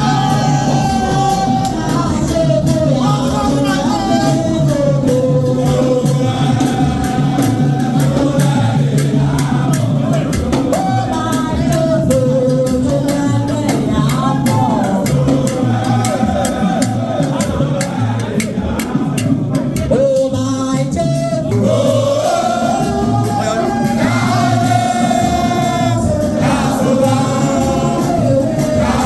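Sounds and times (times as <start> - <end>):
group singing: 0.0 - 29.0
steady percussion beat: 0.0 - 29.0.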